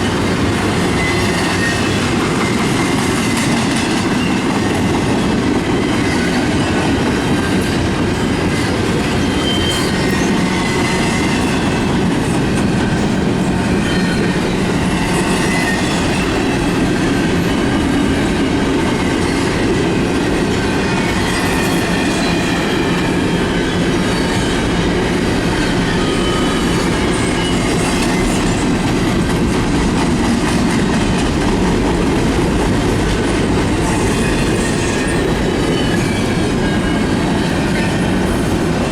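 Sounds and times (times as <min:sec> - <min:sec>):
railcar wheels rumbling on rails: 0:00.0 - 0:38.9
high wheel squeal: 0:09.1 - 0:11.8, 0:13.4 - 0:16.7, 0:20.8 - 0:28.7, 0:33.8 - 0:38.6.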